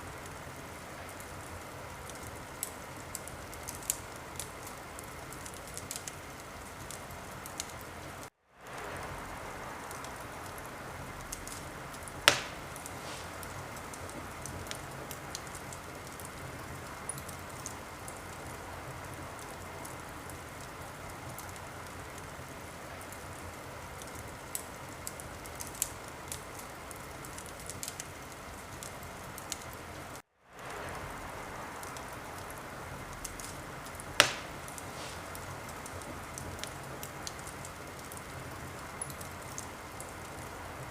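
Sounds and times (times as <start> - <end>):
wood fire crackling: 0.0 - 40.9
sharp loud pops: 12.3 - 13.3, 34.2 - 35.2.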